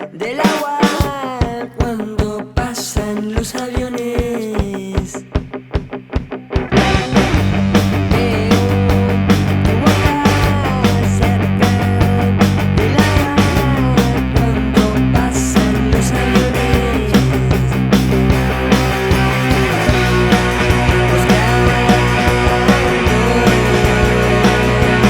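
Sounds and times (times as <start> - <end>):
rock band instrumental: 0.0 - 25.0.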